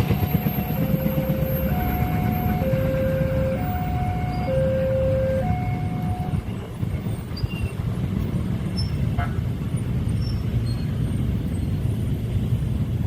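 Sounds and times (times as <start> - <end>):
two-tone crossing alarm: 0.0 - 6.5.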